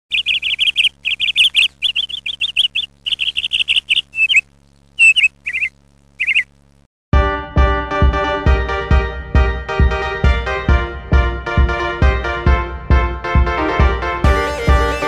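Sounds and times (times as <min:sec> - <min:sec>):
small bird chirping: 0:00.1 - 0:06.7
faint steady hum: 0:00.1 - 0:06.9.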